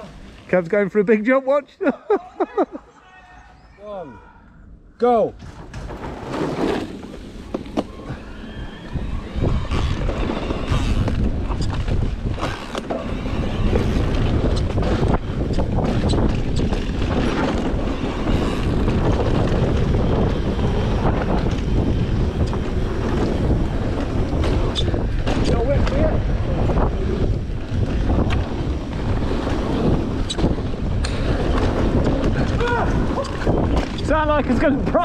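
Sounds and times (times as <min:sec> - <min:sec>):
wind buffeting microphone: 0:04.6 - 0:35.0
mini bike riding fast: 0:05.5 - 0:35.0
bike rattling and knocking: 0:09.3 - 0:35.0.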